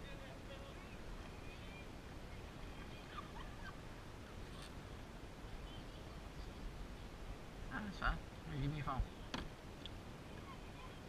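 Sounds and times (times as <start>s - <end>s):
faint bird calls: 0.5s - 4.8s, 10.2s - 11.0s.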